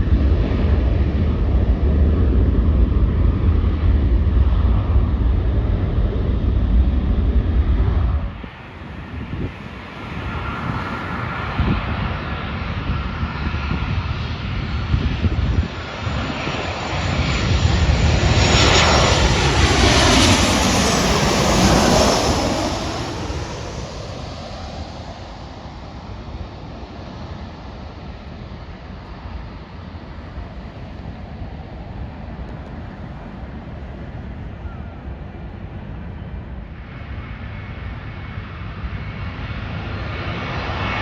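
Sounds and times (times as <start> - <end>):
jet airliner passing: 0.0 - 41.0.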